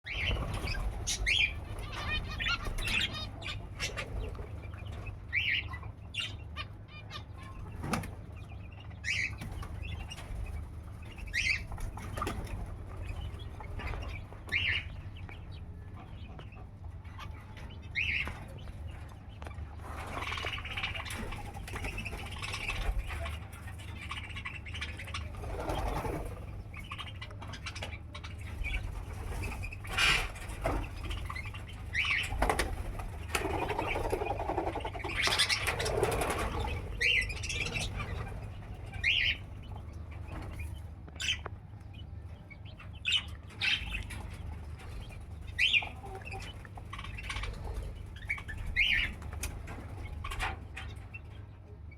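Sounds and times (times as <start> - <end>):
birds chirping: 0.0 - 51.9
steady low hum: 0.0 - 51.9
wings flapping: 9.4 - 14.7, 19.8 - 23.8, 24.8 - 27.0, 28.5 - 39.4.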